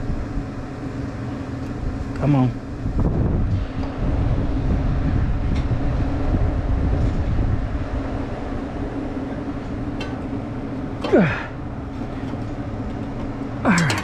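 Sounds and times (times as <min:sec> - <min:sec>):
low machinery hum and rumble: 0:00.0 - 0:14.0.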